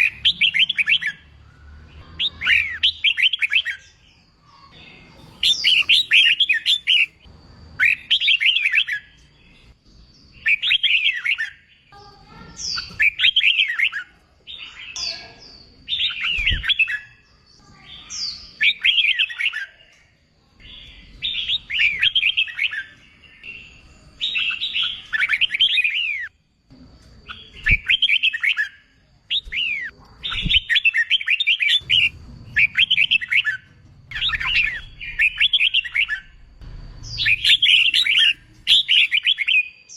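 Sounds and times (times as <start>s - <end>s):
bird warbling whistled notes: 5.2s - 7.2s, 30.3s - 36.4s, 37.0s - 39.8s.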